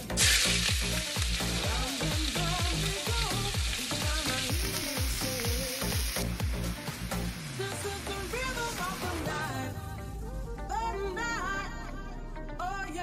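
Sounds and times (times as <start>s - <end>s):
shrimp sizzling in hot oil: 0.0s - 9.7s
background music with a beat: 0.0s - 13.0s.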